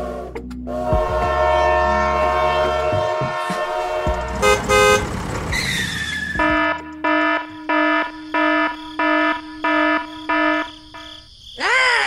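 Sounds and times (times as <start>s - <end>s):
toy train horn toot: 1.0s - 6.8s.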